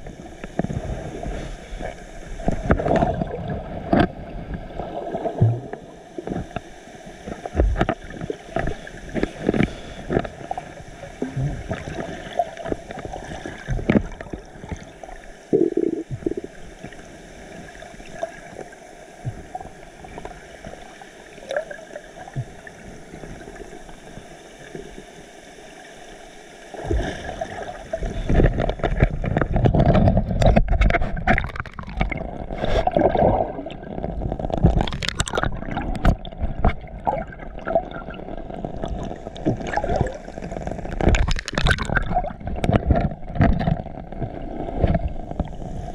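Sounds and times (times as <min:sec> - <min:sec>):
water sloshing and splashing: 0:00.0 - 0:24.2, 0:26.7 - 0:45.9
knocks and gurgles: 0:01.8 - 0:06.6, 0:07.3 - 0:14.9, 0:15.5 - 0:16.6, 0:26.8 - 0:45.8.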